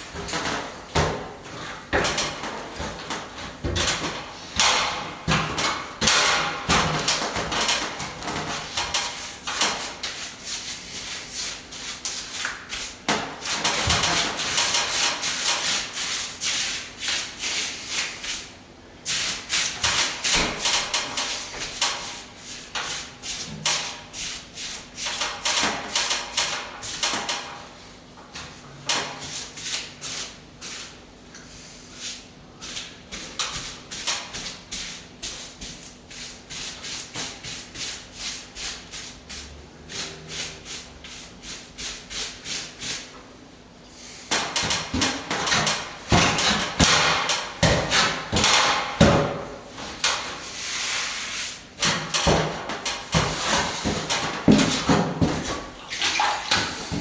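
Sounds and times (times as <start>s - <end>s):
plastering tool scraping plaster: 0.0s - 18.5s, 31.9s - 43.2s, 44.3s - 57.0s.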